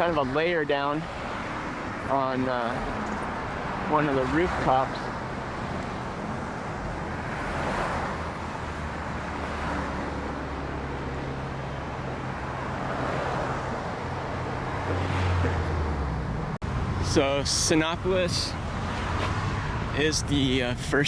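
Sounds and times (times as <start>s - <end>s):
tyres on the road: 0.0s - 21.0s
vehicles passing: 0.0s - 21.0s
engines running: 14.3s - 21.0s.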